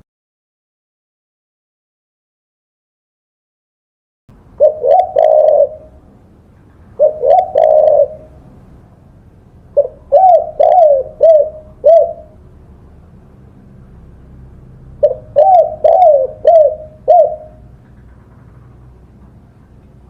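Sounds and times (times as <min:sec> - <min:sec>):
dove cooing: 0:04.6 - 0:06.1, 0:06.8 - 0:08.6, 0:09.7 - 0:12.4, 0:15.0 - 0:17.8.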